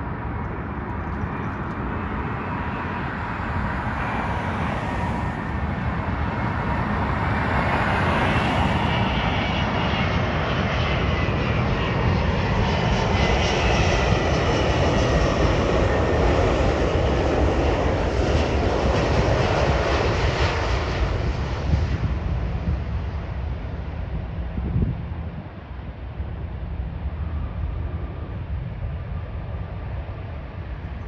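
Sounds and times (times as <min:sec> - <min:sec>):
jet airliner flying by: 0:00.0 - 0:31.0.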